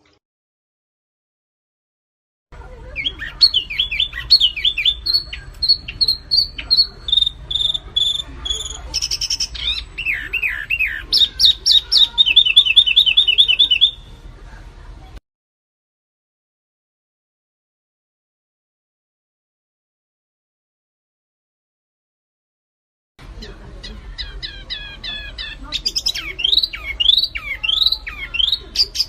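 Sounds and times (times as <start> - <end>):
songbird singing: 2.6 - 14.2, 23.3 - 29.0.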